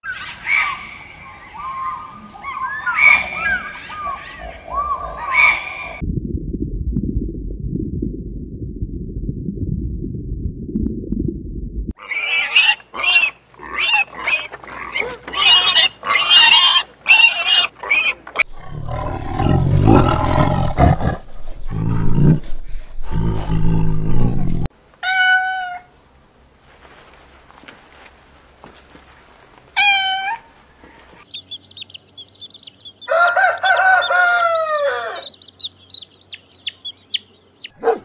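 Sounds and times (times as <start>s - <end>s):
pigs squealing: 1.6s - 6.0s, 12.0s - 21.3s
low rumble: 6.0s - 11.9s, 18.5s - 24.7s
deep pig calls: 12.0s - 24.7s.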